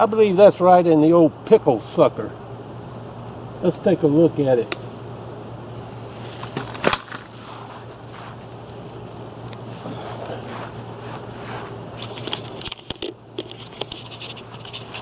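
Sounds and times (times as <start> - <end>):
insects chirring: 0.0 - 15.0
low steady hum: 0.0 - 15.0
sharp click: 4.6 - 4.9.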